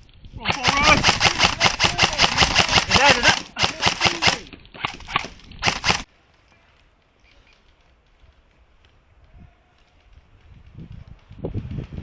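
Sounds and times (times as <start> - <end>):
faint outdoor background: 0.0 - 12.0
voices: 0.4 - 4.6, 6.1 - 10.3
airsoft rifle rapid fire: 0.5 - 6.1.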